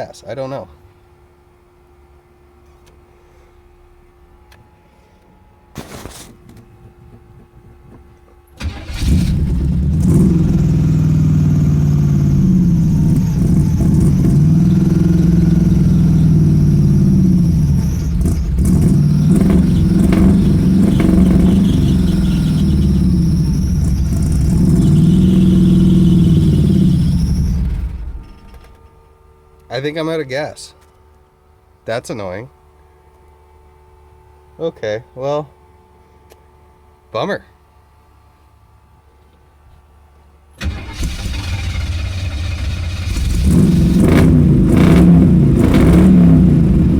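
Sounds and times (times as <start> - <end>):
car engine revving through exhaust: 8.7 - 28.6, 41.2 - 46.9.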